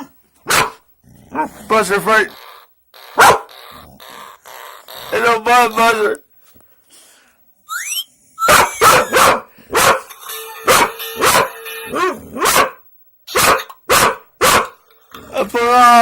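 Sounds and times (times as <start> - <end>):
dog barking: 0.4 - 0.8, 3.2 - 3.5, 8.4 - 10.1, 10.7 - 14.8
toy rising whistle: 7.7 - 9.2.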